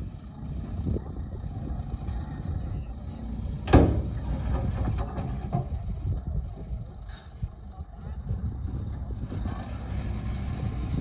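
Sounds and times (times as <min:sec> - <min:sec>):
heavy machinery engine rumble: 0:00.0 - 0:11.0
loud metal clank: 0:03.6 - 0:05.8.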